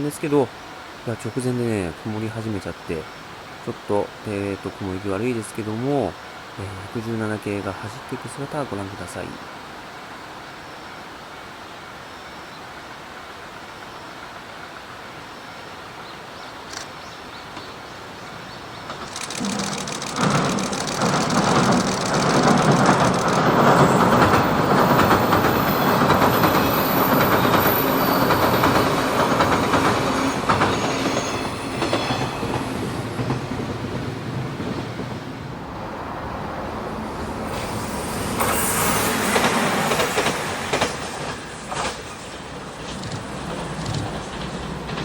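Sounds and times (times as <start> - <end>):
electric train passing: 18.0 - 45.0.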